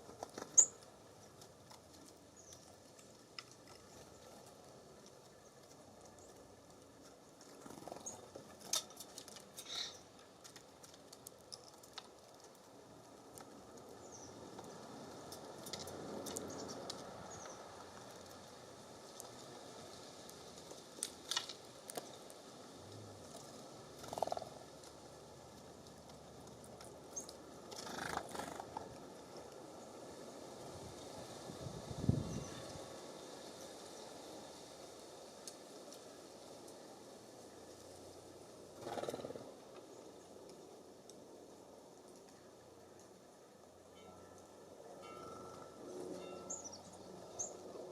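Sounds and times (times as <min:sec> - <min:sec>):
birds scratching and rustling: 0:00.0 - 0:29.7, 0:35.4 - 0:41.2
faint breeze hiss: 0:00.0 - 0:47.9.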